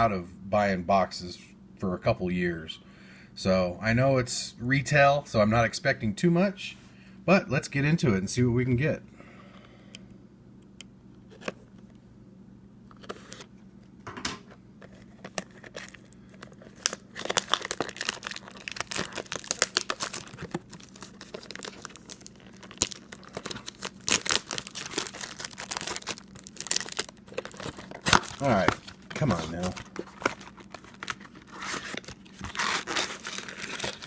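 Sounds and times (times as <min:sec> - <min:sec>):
packaging crinkling and tearing: 0:14.8 - 0:34.0.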